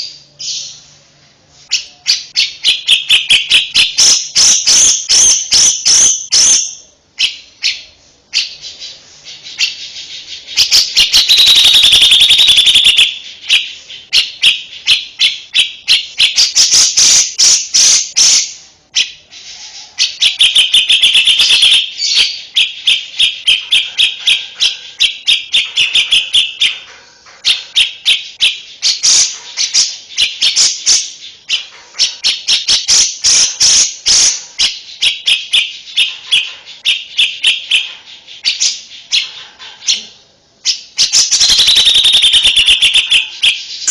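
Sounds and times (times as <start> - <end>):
songbird singing: 0.0 - 43.9.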